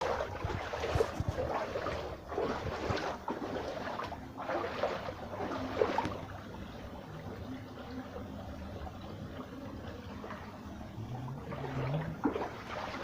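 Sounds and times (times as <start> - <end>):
wind buffeting microphone: 0.0 - 4.5
floodwater sloshing and splashing: 0.0 - 13.0.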